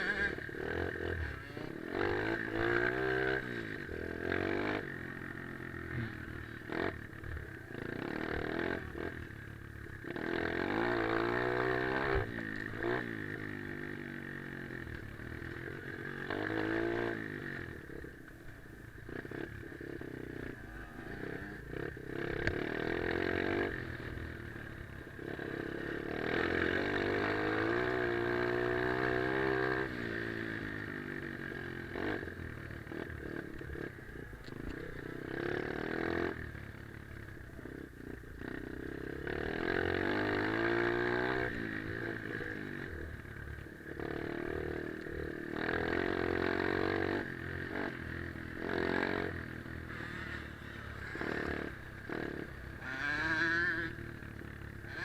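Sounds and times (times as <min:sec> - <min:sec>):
motorbike engine revving: 0:00.0 - 0:09.2, 0:09.9 - 0:18.0, 0:37.2 - 0:43.3, 0:43.9 - 0:55.0.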